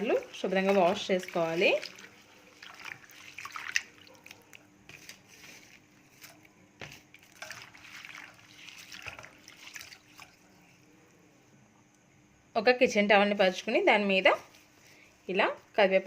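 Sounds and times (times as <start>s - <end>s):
hands swishing leaves in water: 0.0s - 10.4s
water sloshing and splashing: 0.0s - 10.6s.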